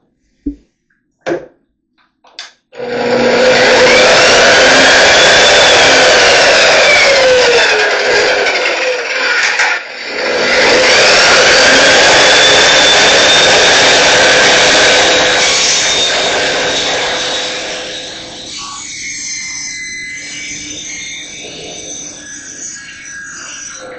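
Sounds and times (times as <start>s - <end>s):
power tool motor whining: 2.8s - 18.8s.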